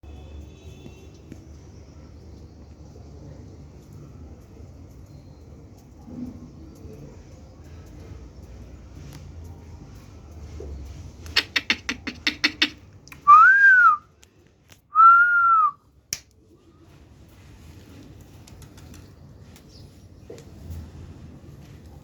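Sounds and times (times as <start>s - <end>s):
short whistled notes: 13.3s - 14.0s, 15.0s - 15.8s.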